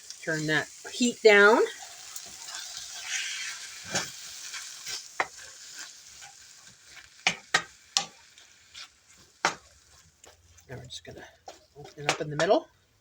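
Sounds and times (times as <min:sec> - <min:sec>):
food sizzling in a frying pan: 0:00.0 - 0:13.0
utensil knocking against pan: 0:07.2 - 0:08.2, 0:11.5 - 0:12.6.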